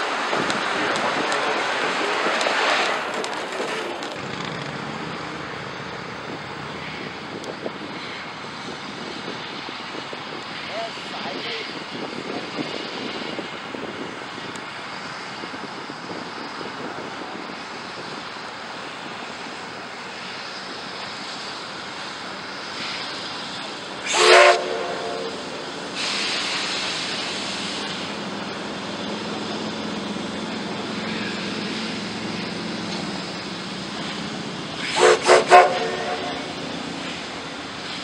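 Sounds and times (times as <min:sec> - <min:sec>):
steam hissing: 0:00.0 - 0:38.0
burst of escaping steam: 0:19.2 - 0:30.0, 0:30.6 - 0:38.0
steam locomotive whistle: 0:24.0 - 0:27.0, 0:34.8 - 0:36.7.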